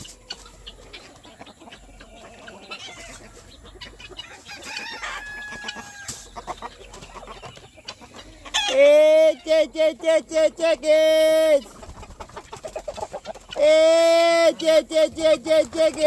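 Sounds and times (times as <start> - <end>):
chickens clucking: 0.0 - 16.0
chicken long held call: 8.5 - 11.7.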